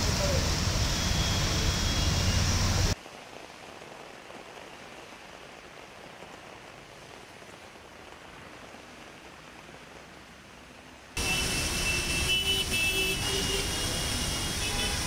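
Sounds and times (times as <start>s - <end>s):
traffic driving through water: 0.0s - 3.2s, 8.1s - 15.0s
heavy rain: 0.0s - 15.0s.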